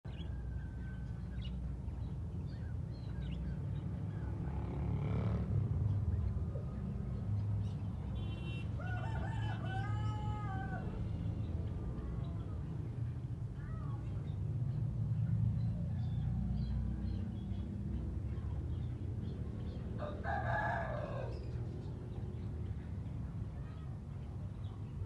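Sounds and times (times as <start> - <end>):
small birds chirping: 0.9 - 4.3
rooster crowing: 8.8 - 11.0, 20.0 - 21.5.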